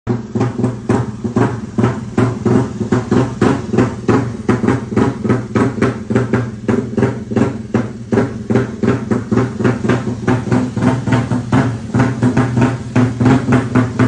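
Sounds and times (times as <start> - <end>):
motorcycle engine idling: 0.1 - 14.0.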